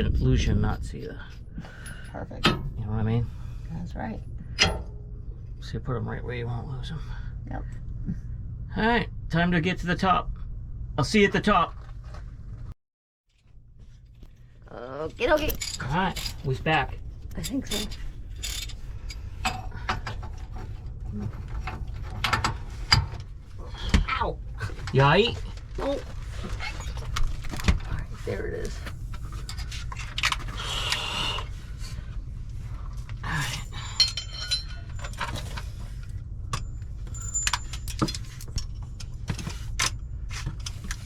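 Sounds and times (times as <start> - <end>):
steady low rumble: 0.0 - 12.7, 13.4 - 41.0
hand tools clinking on metal: 33.3 - 35.6, 36.6 - 38.4.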